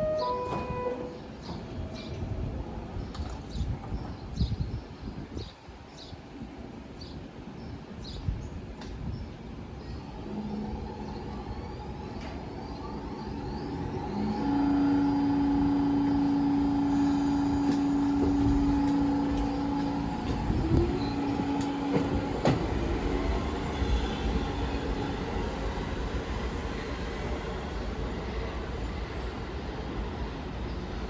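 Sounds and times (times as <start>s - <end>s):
subway train rumble: 0.0s - 31.0s.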